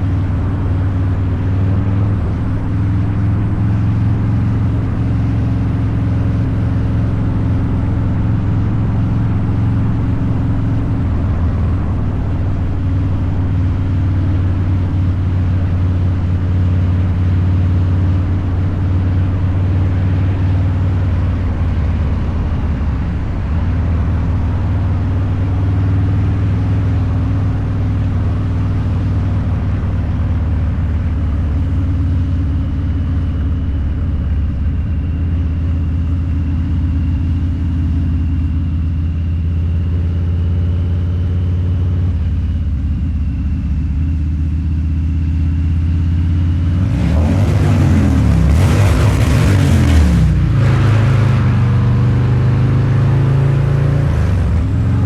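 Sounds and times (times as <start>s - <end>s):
motorcycle engine cruising: 0.0s - 38.7s, 46.0s - 55.0s.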